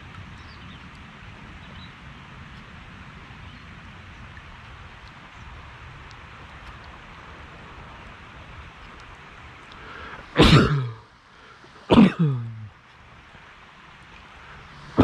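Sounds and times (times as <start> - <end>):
background hiss: 0.0 - 15.0
person coughing: 10.4 - 11.0, 11.9 - 12.7.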